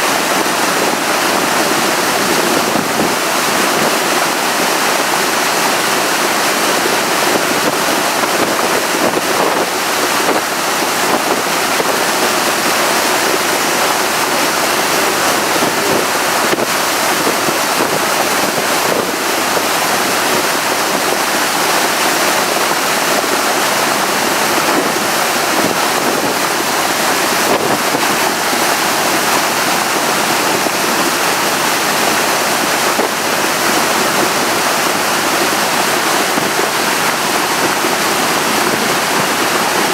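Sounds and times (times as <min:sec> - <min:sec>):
water rushing past boat: 0:00.0 - 0:39.9
wind buffeting microphone: 0:06.8 - 0:12.4, 0:24.5 - 0:31.2.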